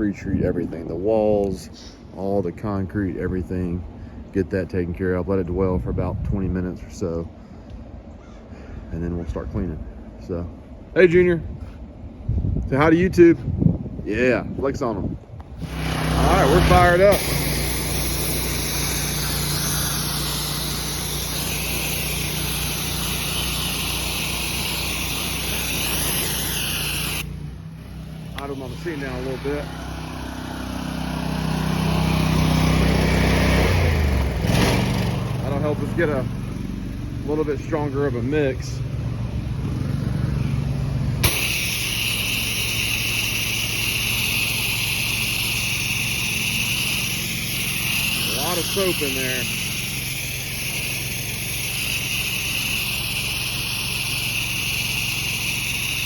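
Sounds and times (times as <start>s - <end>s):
water spraying hiss: 15.6s - 35.9s, 41.2s - 56.0s
pressure washer engine running: 15.6s - 56.0s.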